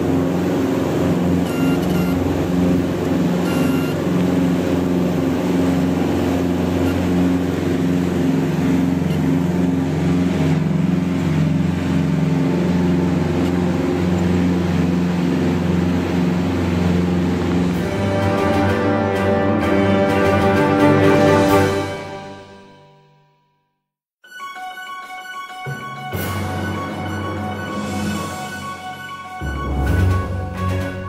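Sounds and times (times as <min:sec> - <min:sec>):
aircraft piston engines droning: 0:00.0 - 0:21.5.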